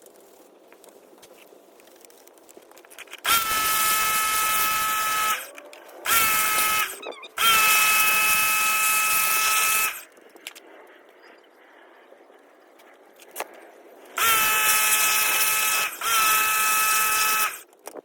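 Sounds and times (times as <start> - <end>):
pressure washer motor whine: 3.3 - 10.0, 14.2 - 17.6.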